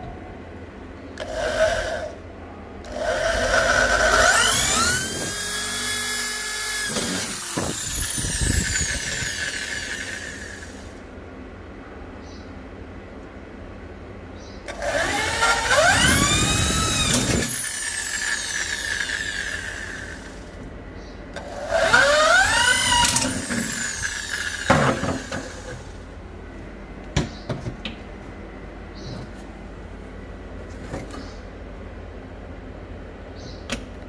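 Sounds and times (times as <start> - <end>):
power drill motor whine: 1.2 - 2.2, 2.8 - 11.0, 14.7 - 20.6, 21.4 - 26.1.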